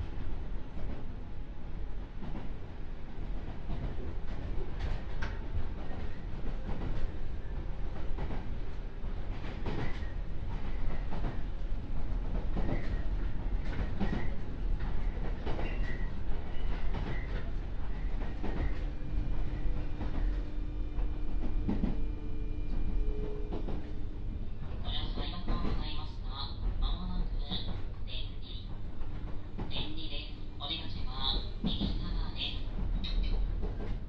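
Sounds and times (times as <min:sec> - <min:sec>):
train interior rumble: 0:00.0 - 0:34.0.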